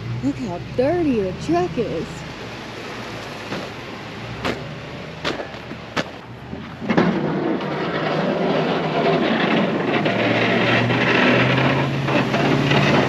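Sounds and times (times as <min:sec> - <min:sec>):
truck engine running: 0:00.0 - 0:13.0
sharp knocks: 0:03.5 - 0:03.8, 0:04.4 - 0:10.3.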